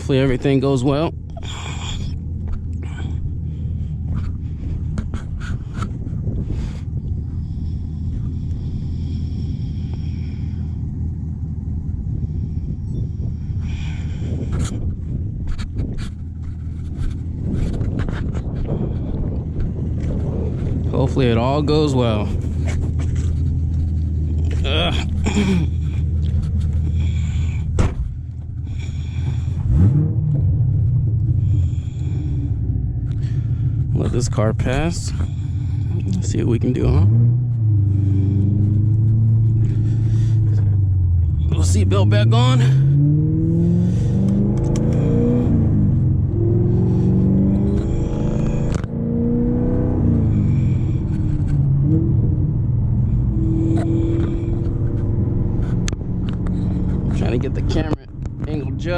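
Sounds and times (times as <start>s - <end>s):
car engine idling: 0.0s - 58.9s
sharp click: 44.2s - 45.0s.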